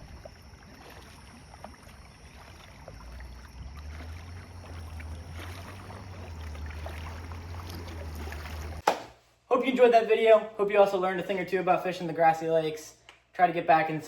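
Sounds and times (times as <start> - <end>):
water splashing against hull: 0.0 - 9.2
low steady rumble: 2.7 - 8.8.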